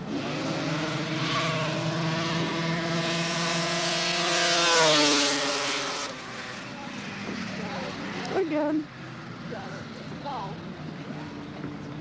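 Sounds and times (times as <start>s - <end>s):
snowmobile engine racing by: 0.0s - 8.5s.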